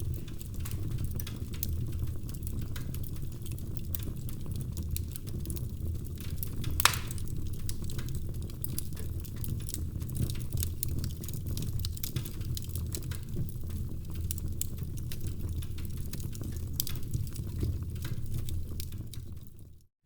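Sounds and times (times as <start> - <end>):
wood fire crackling and popping: 0.0 - 19.7.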